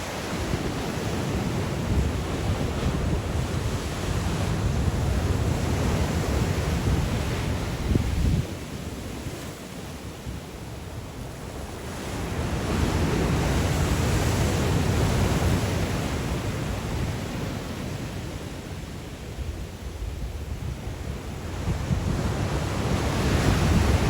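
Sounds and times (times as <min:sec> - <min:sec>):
wind buffeting microphone: 0:00.0 - 0:09.3, 0:19.4 - 0:24.0
sea waves breaking on shore: 0:00.0 - 0:24.0.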